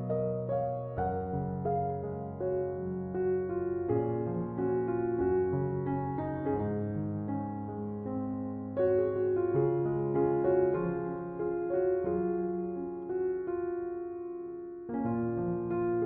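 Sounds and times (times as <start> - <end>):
soft piano chords: 0.0 - 16.0.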